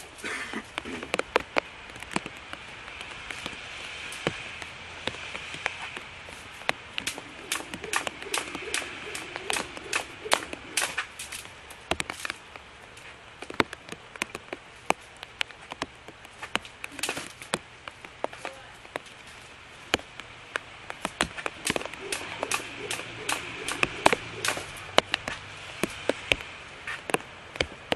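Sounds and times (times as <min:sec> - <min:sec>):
sharp taps and slaps: 0:00.7 - 0:12.4, 0:19.9 - 0:27.9.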